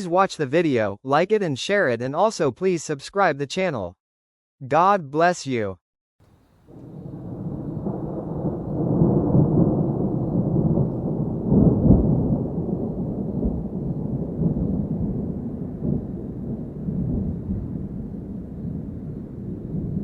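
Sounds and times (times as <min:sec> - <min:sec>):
thunder rumbling: 0:06.6 - 0:20.0.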